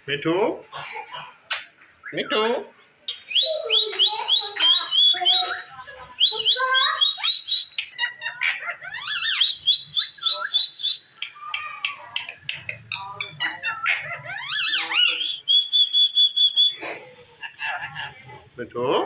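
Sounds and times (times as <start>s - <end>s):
harsh parakeet calls: 1.5s - 18.5s
parakeet whistled chirps: 3.1s - 11.3s, 12.9s - 16.8s.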